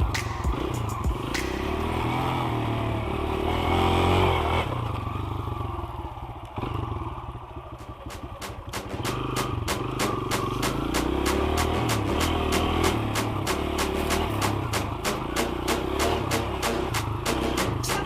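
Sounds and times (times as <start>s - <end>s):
dirt bike engine revving: 0.0s - 18.0s
sharp clicks: 1.3s - 1.9s.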